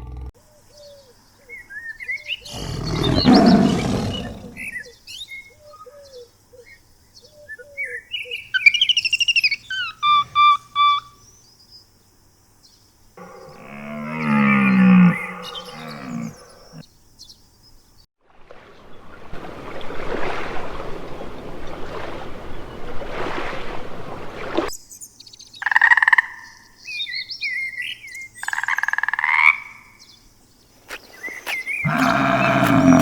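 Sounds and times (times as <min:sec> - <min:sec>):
low drawn-out animal call: 0:00.0 - 0:00.3, 0:02.4 - 0:04.8, 0:09.7 - 0:11.1, 0:13.2 - 0:16.8, 0:31.8 - 0:33.0
roar-like animal call: 0:00.0 - 0:00.3, 0:02.4 - 0:04.8, 0:13.2 - 0:16.8, 0:31.8 - 0:33.0.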